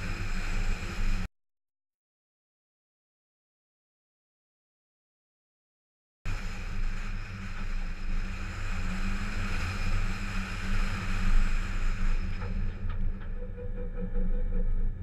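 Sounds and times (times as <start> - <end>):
wind rushing over microphone: 0.0 - 1.3, 6.3 - 14.0.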